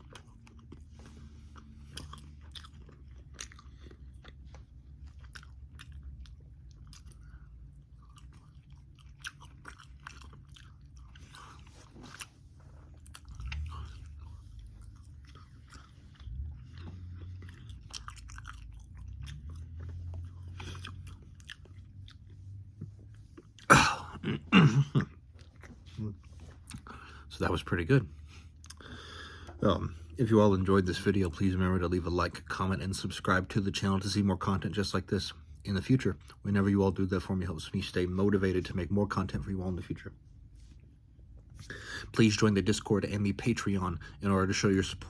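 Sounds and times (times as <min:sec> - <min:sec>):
person chewing crunchy food: 0:00.0 - 0:27.3, 0:28.2 - 0:30.2.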